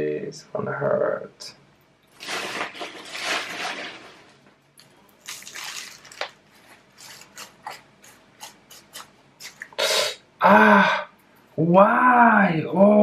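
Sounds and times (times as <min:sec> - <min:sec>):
potting mix rustling and scraping: 0:02.1 - 0:04.5, 0:05.2 - 0:09.7.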